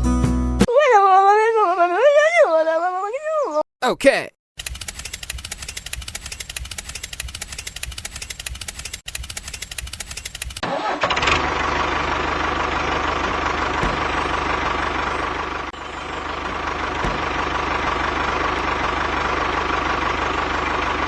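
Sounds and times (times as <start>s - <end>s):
rapid ticking: 4.6s - 10.6s
small motor whining: 4.6s - 19.8s.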